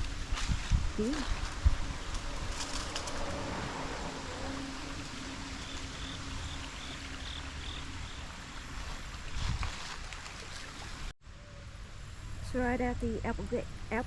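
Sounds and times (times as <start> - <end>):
wind rumbling on microphone: 0.0 - 11.1.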